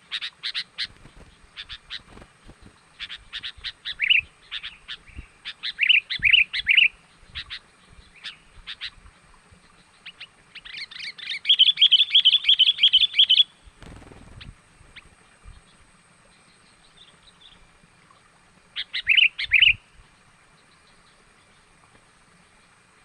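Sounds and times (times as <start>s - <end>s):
songbird chattering and trilling: 0.0s - 9.0s, 9.6s - 17.6s, 18.8s - 19.8s.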